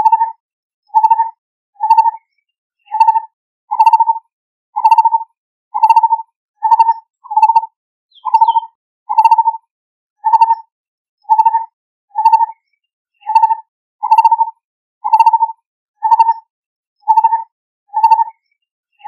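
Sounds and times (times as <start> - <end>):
bird calling hollow low notes: 5.8 - 9.5.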